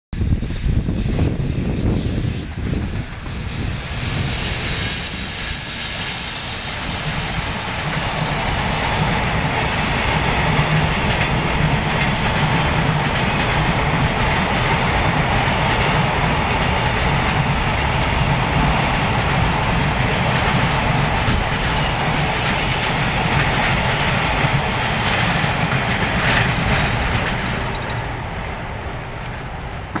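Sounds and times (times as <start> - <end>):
train wheels rumbling on rails: 0.2 - 30.0
high squeal: 3.1 - 9.8
clickety-clack over rail joints: 7.8 - 30.0.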